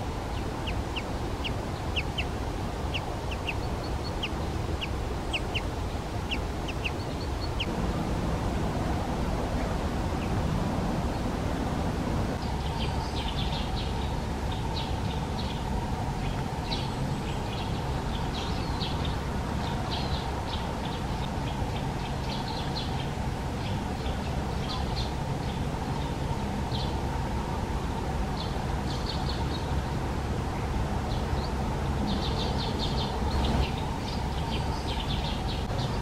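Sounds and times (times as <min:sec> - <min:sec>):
low background rumble: 0:00.0 - 0:36.0.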